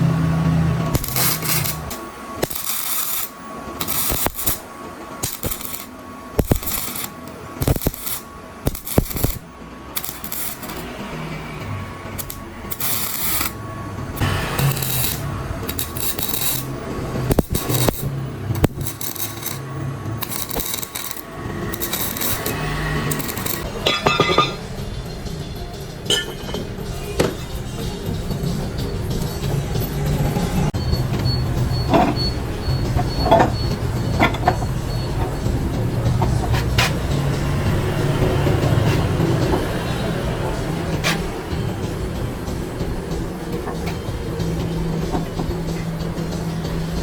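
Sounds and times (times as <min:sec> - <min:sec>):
metal tools clinking and knocking: 0:23.1 - 0:24.7, 0:26.1 - 0:26.7, 0:31.1 - 0:35.4.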